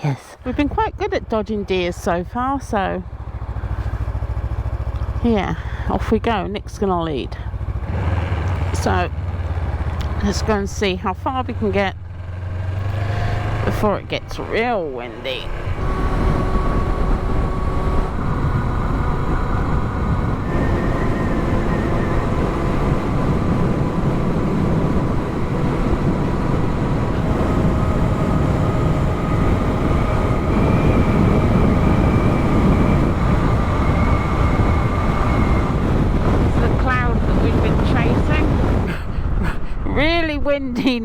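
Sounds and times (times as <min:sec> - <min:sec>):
wind buffeting microphone: 0:12.6 - 0:41.0
faint steady whines: 0:12.9 - 0:38.9.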